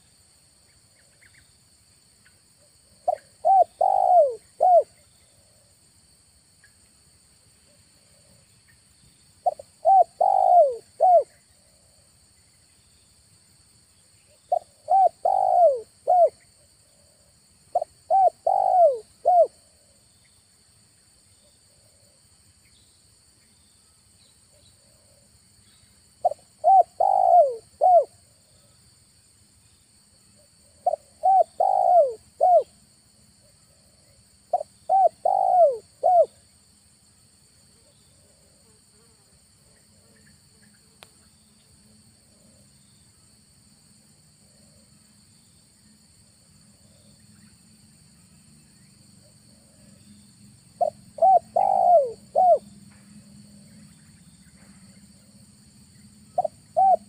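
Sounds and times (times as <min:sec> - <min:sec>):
insects buzzing: 0:00.0 - 0:57.0
dove cooing: 0:03.0 - 0:04.9, 0:09.4 - 0:11.9, 0:14.5 - 0:16.3, 0:17.0 - 0:19.6, 0:26.2 - 0:28.2, 0:30.7 - 0:32.7, 0:34.5 - 0:36.4, 0:50.8 - 0:52.6, 0:56.4 - 0:57.0.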